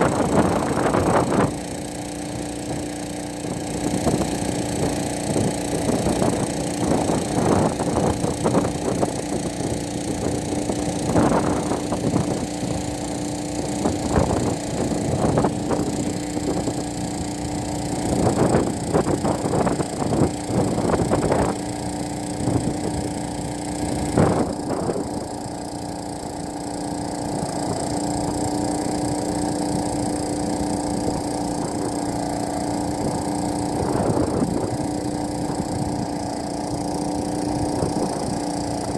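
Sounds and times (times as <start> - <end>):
drone rotors humming: 0.0 - 38.9.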